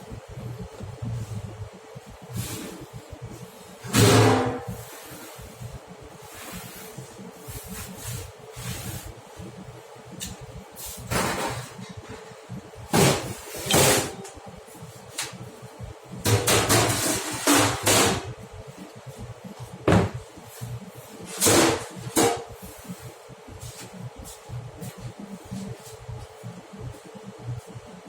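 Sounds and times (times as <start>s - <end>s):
faint steady hum: 0.0s - 28.0s
kitchen knocks and bangs: 3.9s - 4.7s, 12.9s - 14.2s, 16.2s - 18.3s, 19.8s - 20.2s, 21.4s - 22.5s.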